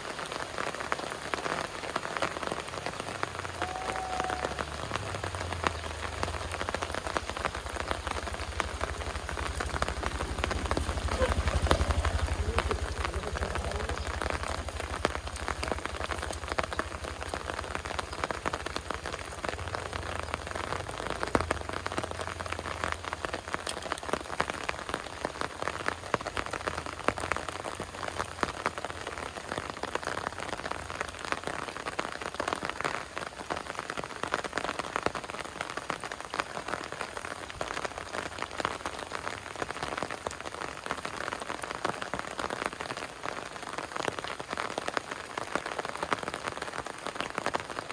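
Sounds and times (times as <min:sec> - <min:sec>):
heavy rain falling: 0:00.0 - 0:47.9
low rumble: 0:04.6 - 0:23.3.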